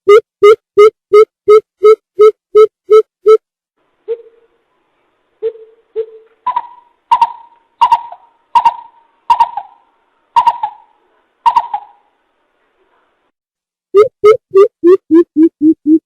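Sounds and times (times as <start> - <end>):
bird hooting call: 5.4 - 9.8, 10.4 - 10.9, 11.5 - 12.0.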